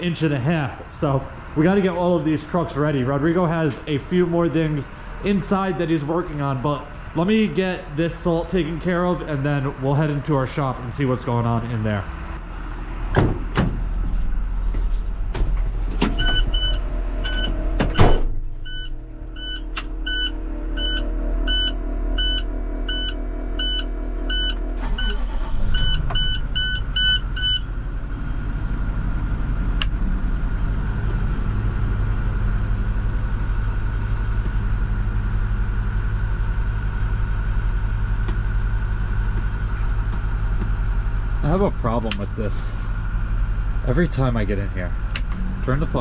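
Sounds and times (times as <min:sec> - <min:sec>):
diesel engine starting and idling: 0:00.0 - 0:46.0
clicks and knocks in truck cab: 0:13.1 - 0:13.9
dashboard warning chime beeping: 0:16.2 - 0:27.7.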